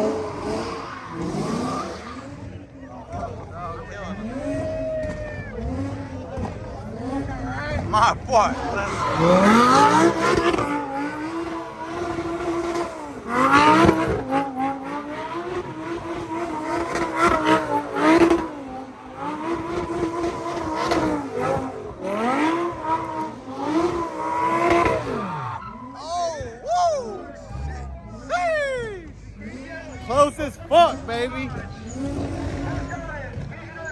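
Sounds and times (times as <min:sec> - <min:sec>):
car engine revving high: 0:00.0 - 0:25.9, 0:29.4 - 0:33.6
tyre squeal: 0:08.5 - 0:14.1, 0:23.9 - 0:26.3.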